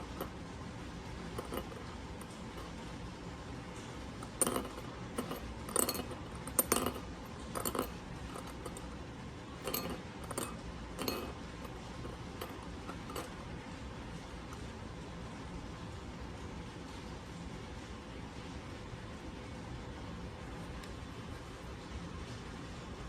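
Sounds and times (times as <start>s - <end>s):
ring knocking on a dish: 1.4s - 2.7s, 4.2s - 8.8s, 9.6s - 13.5s.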